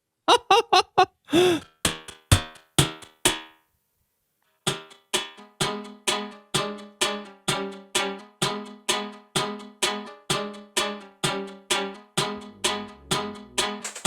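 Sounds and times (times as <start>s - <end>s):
beatbox loop music: 4.8s - 14.0s.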